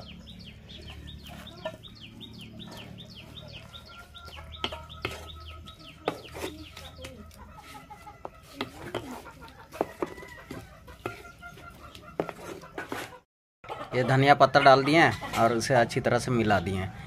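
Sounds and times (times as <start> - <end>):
bird chirping rapidly: 0.0 - 7.8
wooden spatula scraping metal pan: 3.7 - 13.2.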